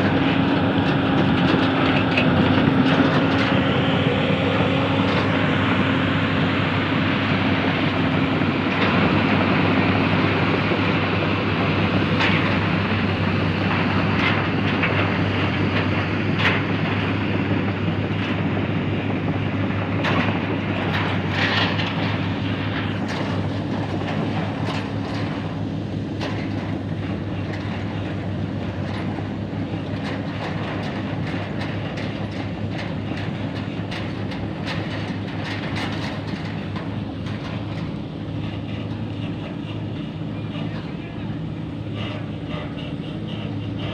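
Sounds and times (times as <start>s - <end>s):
crawler tracks clanking and squeaking: 0.0s - 43.9s
diesel engine hum: 0.0s - 43.9s.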